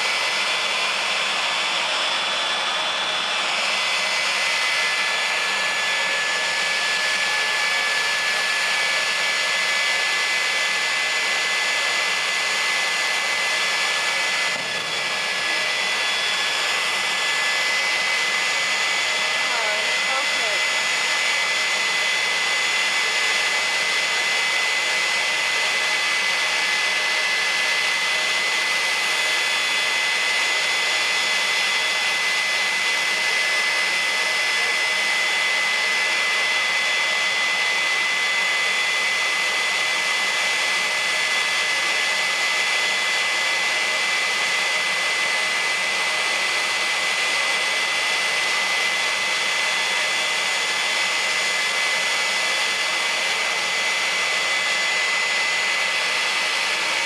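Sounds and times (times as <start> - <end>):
jet engine roaring with turbine whine: 0.0 - 57.0.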